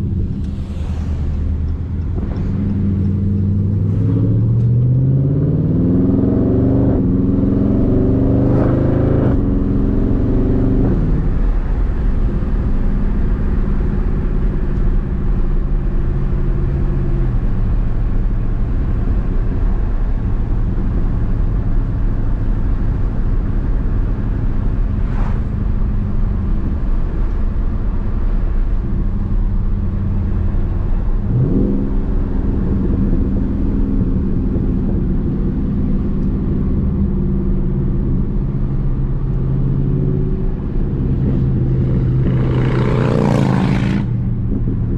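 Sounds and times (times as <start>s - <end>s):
car engine revving: 0.0s - 44.9s.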